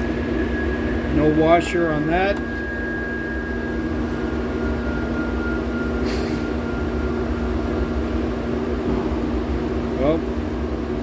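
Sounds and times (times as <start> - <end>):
workshop machinery hum: 0.0 - 11.0
brief scrape or rustle: 6.0 - 6.5.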